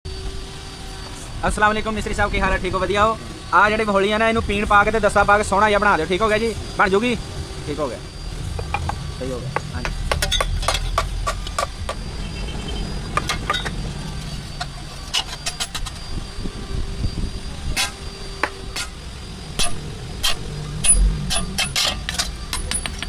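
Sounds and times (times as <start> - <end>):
low mechanical rumble: 0.1 - 23.0
tools knocking on iron: 9.6 - 12.0.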